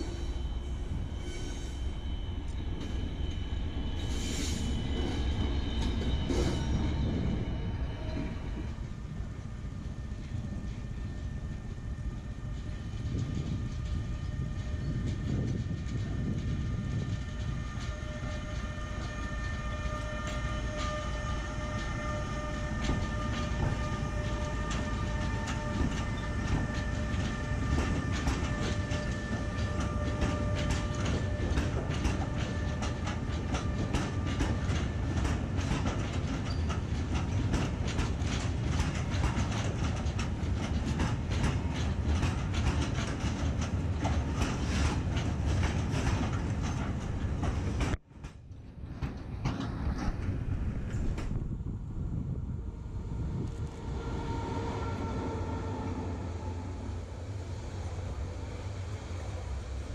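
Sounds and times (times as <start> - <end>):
freight train rolling past: 0.0 - 59.9
wheels clicking over rail joints: 14.8 - 51.5.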